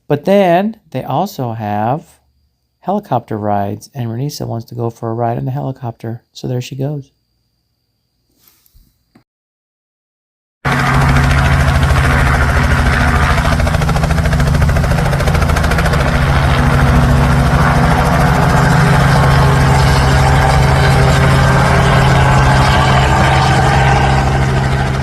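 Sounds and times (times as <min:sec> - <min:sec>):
helicopter running: 0:10.7 - 0:25.0.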